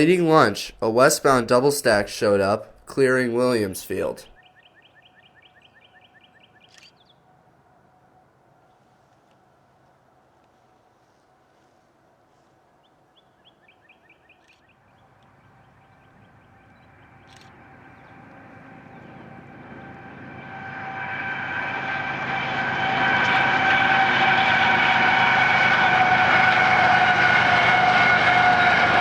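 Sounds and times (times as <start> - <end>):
freight train rumble: 0.0 - 4.4, 15.0 - 29.0
bird chirping: 0.0 - 7.2, 13.1 - 19.8.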